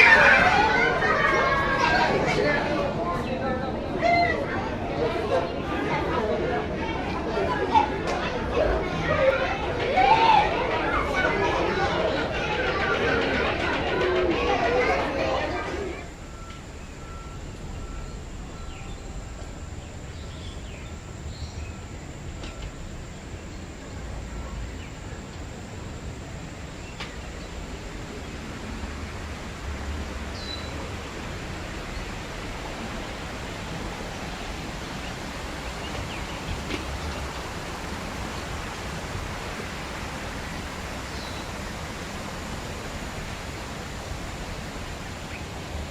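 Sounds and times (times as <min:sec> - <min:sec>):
outdoor hiss: 0:14.4 - 0:45.9
faint bird chirps: 0:16.0 - 0:28.3, 0:41.0 - 0:41.6.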